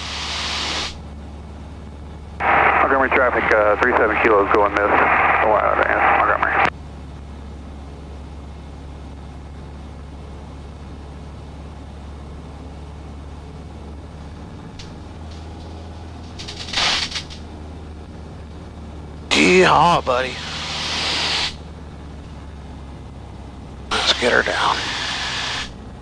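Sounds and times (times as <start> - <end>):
aircraft engine droning: 0.0 - 26.0
short crackle: 14.8 - 17.5.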